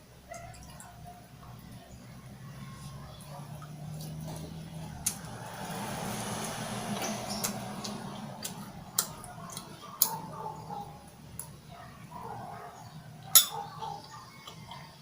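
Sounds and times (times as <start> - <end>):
outdoor noise: 0.0 - 15.0
tableware clicking: 13.4 - 13.7.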